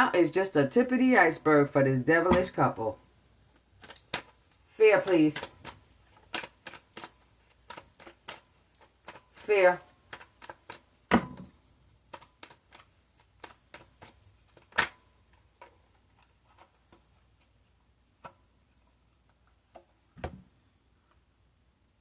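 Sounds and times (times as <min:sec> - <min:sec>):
cards knocking: 0:02.2 - 0:02.8, 0:03.5 - 0:17.5
cards shuffling clicks: 0:03.5 - 0:18.6.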